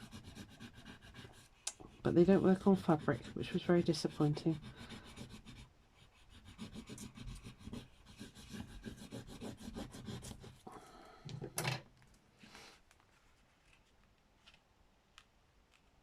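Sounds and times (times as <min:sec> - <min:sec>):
rubbing strokes on paper: 0:00.0 - 0:10.7.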